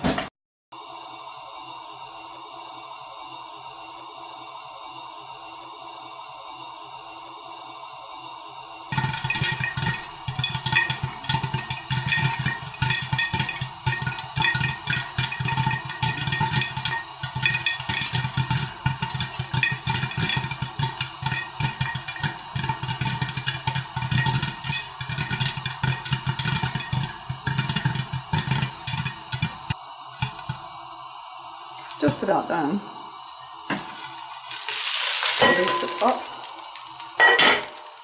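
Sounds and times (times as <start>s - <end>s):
popcorn popping in a pot: 8.9s - 31.0s, 31.6s - 38.0s.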